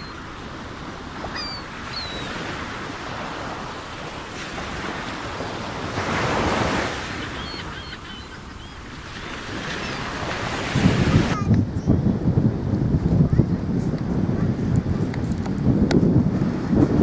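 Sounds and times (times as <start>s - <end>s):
surf washing onto beach: 0.0s - 11.4s
wind on microphone: 0.0s - 17.0s.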